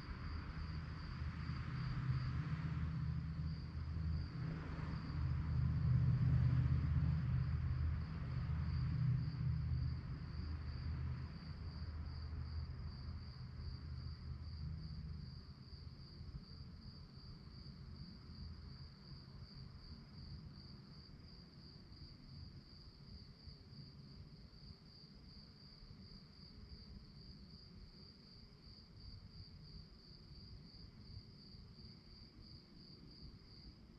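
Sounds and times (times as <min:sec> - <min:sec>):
low droning rumble: 0:00.0 - 0:15.9
crickets chirping: 0:00.0 - 0:33.9.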